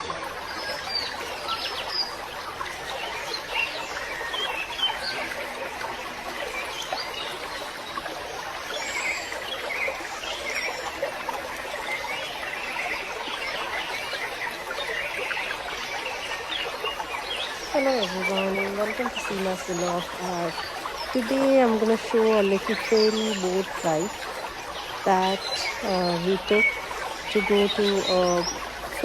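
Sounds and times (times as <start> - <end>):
birds chirping: 11.9 - 29.0.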